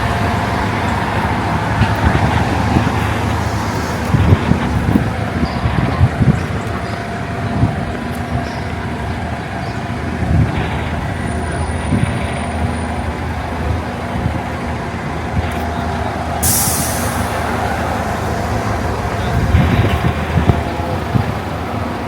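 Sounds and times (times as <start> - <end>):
heavy vehicle engine rumble: 0.0 - 22.0
street traffic: 0.0 - 22.0
air brakes hissing: 15.6 - 22.0.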